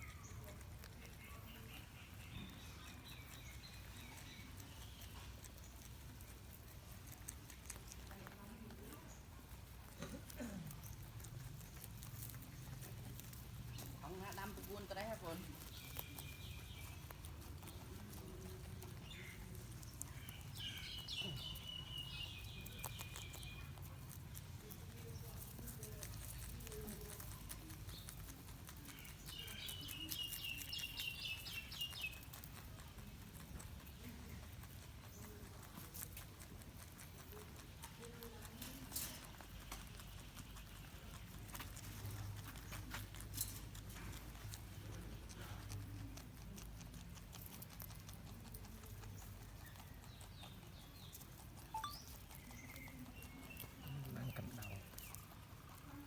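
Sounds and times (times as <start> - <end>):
rabbits munching food: 0.0 - 56.0
high chirping call: 51.6 - 53.6.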